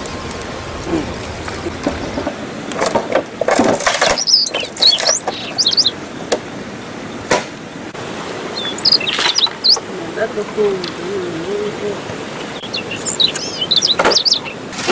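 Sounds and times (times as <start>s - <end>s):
rustles or knocks: 0.9s - 5.4s, 14.0s - 14.9s
small birds chirping: 3.8s - 7.3s, 8.0s - 14.9s.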